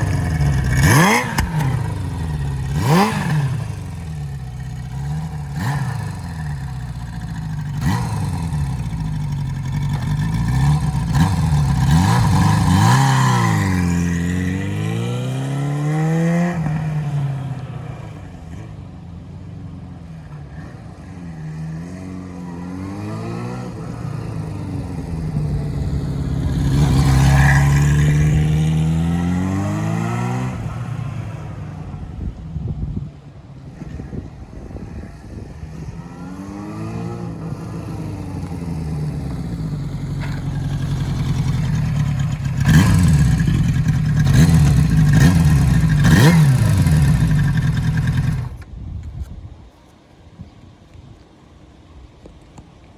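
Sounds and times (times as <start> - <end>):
motorcycle engine revving: 0.0 - 18.7, 20.5 - 32.3, 33.8 - 48.7.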